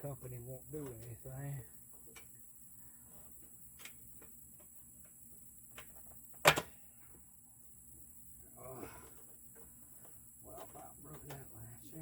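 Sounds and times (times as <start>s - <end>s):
parts clicking and tapping: 9.0s - 11.5s.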